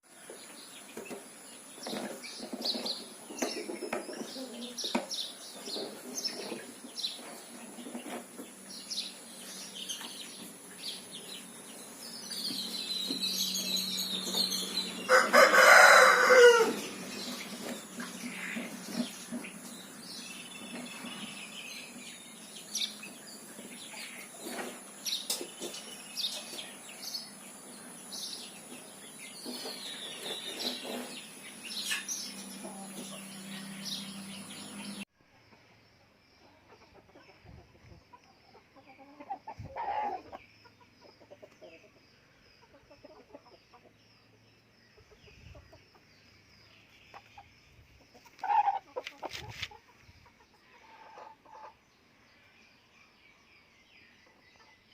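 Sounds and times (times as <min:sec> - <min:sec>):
birds chirping: 0:00.0 - 0:35.1
chickens clucking: 0:00.2 - 0:35.7, 0:36.4 - 0:44.1, 0:44.9 - 0:51.8.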